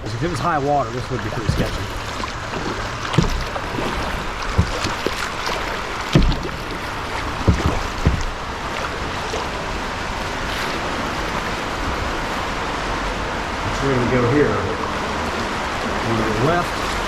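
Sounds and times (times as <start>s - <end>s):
dull knocks: 0.0s - 12.2s
paddle strokes splashing: 0.0s - 17.0s
rushing water: 0.0s - 17.0s.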